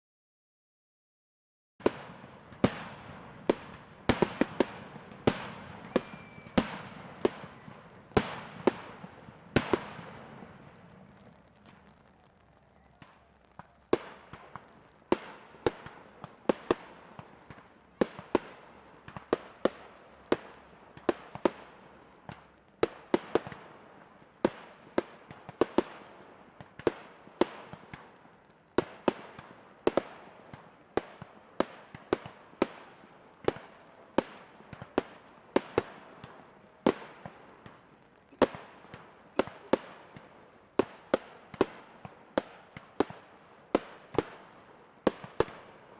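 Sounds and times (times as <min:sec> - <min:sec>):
firework bangs echoing: 0:01.8 - 0:12.0.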